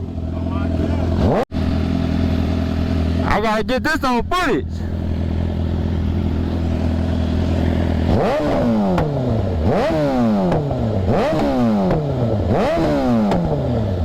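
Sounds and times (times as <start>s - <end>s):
motorcycle engine idling and revving: 0.0s - 14.0s.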